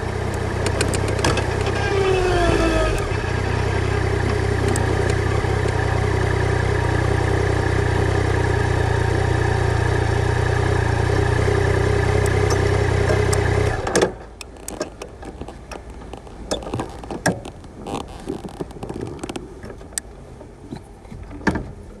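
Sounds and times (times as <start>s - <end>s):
motorcycle engine idling: 0.0s - 15.7s.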